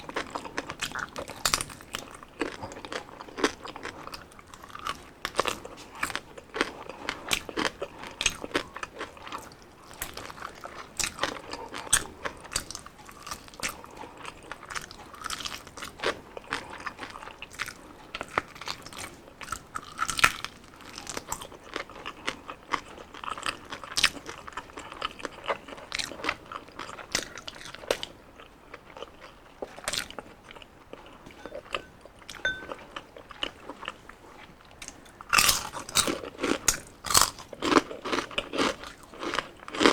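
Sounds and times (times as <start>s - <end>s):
crunching fried skin: 34.9s - 39.9s.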